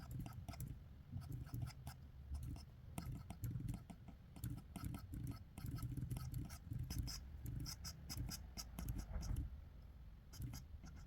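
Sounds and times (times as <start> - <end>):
pencil scratching on paper: 0.0 - 9.4, 10.3 - 11.0.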